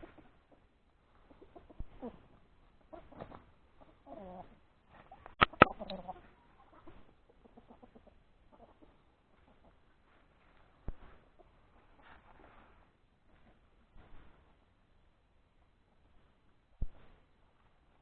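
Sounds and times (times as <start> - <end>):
chickens clucking: 0.0 - 13.7
rustling: 8.7 - 14.7.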